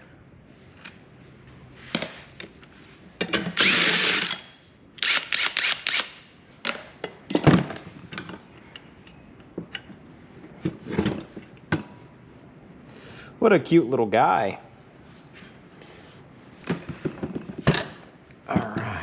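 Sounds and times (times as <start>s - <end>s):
power drill bursts: 3.6s - 4.4s, 5.0s - 6.2s.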